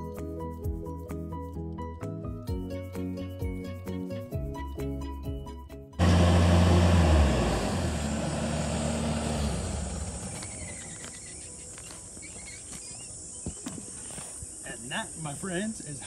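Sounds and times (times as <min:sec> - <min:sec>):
diesel engine low drone: 0:06.0 - 0:12.4.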